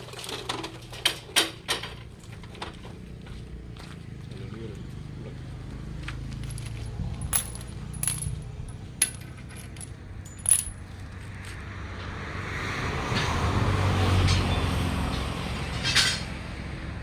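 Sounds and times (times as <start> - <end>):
sharp metallic clinks: 6.4 - 10.9.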